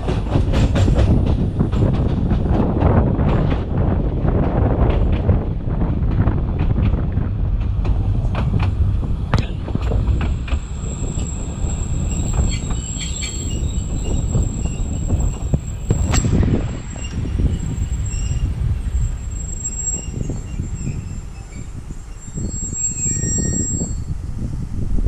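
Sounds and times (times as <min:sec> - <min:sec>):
train wheels rumbling: 0:00.0 - 0:25.0
wheels squealing: 0:09.4 - 0:24.3.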